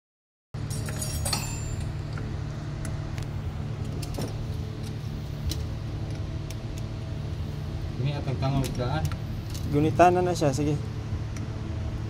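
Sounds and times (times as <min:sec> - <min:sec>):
light metallic clinks: 0:00.6 - 0:01.9.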